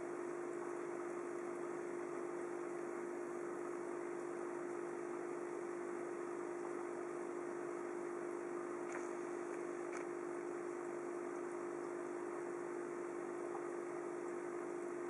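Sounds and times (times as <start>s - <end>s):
aquarium pump humming: 0.0s - 15.0s
faint ticks: 8.8s - 10.2s.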